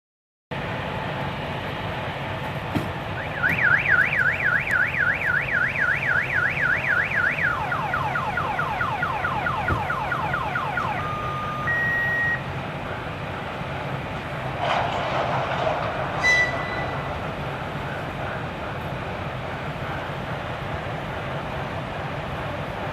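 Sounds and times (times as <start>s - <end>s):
car alarm siren: 3.2s - 12.5s.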